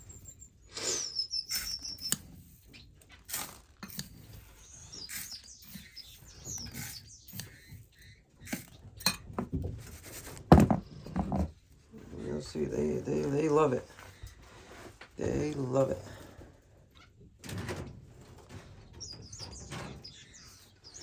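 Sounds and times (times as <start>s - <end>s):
finches chirping: 0.0s - 3.2s, 3.9s - 8.6s, 18.9s - 21.0s.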